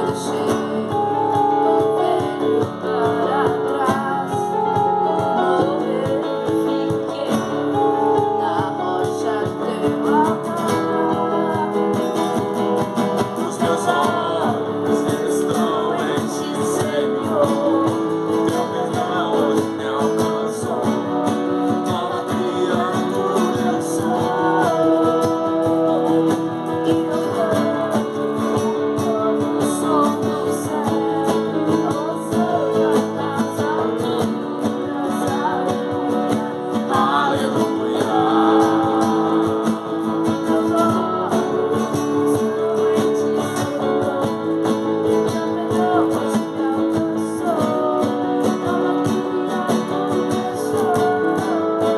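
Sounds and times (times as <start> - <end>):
strummed acoustic guitar song: 0.0 - 51.9.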